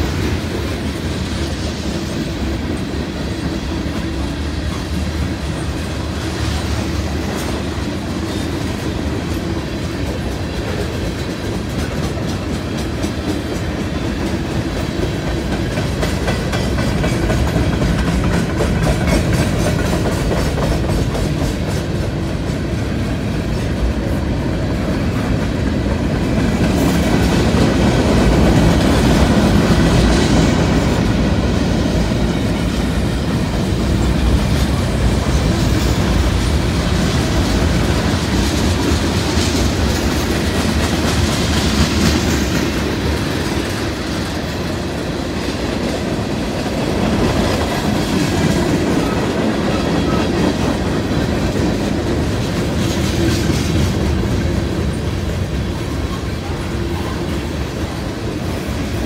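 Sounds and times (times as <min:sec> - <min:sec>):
freight train rumble: 0:00.0 - 0:59.0
wheels clacking over rail joints: 0:00.0 - 0:59.0.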